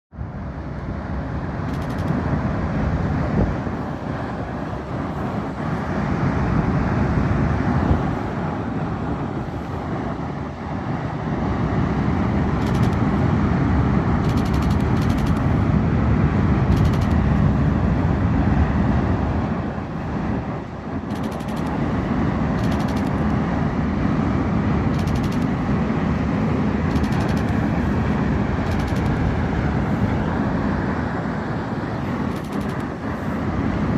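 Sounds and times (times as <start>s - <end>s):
loud low outdoor rumble: 0.1s - 33.9s
faint high clicks: 21.1s - 21.8s, 22.6s - 23.4s, 25.0s - 25.5s, 26.9s - 27.6s, 28.7s - 29.2s, 32.3s - 32.9s.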